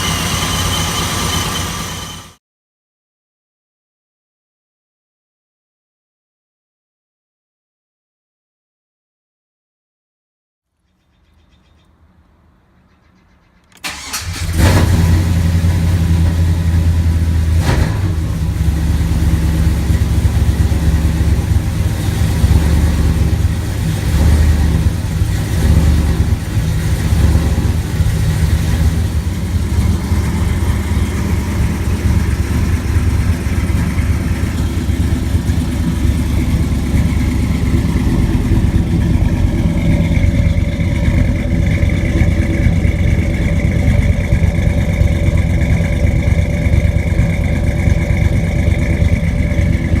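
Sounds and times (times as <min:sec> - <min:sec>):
car engine starting and idling: 0:00.0 - 0:02.4, 0:13.6 - 0:50.0.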